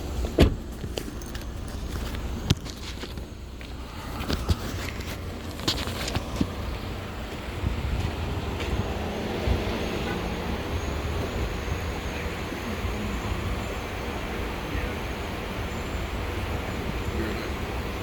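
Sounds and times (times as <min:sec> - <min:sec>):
motor vehicle engine rumble: 0:00.0 - 0:18.0
road noise: 0:00.0 - 0:18.0.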